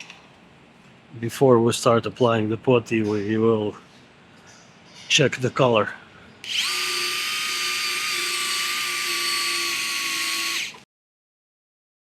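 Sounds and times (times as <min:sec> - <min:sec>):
power tool hissing and whining: 0:06.4 - 0:10.8.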